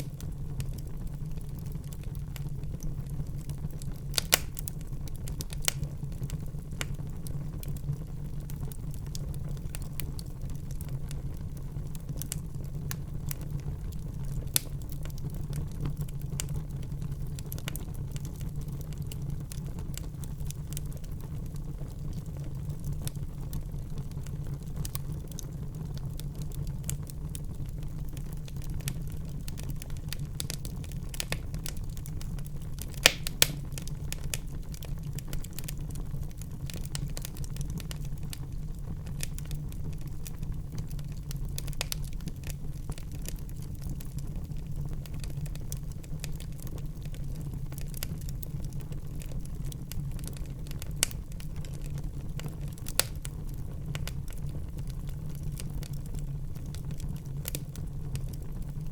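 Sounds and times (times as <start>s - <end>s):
sharp fire pops: 0.0s - 0.4s, 4.1s - 4.8s, 28.6s - 35.8s, 52.7s - 53.3s
wood fire crackling: 0.0s - 58.9s.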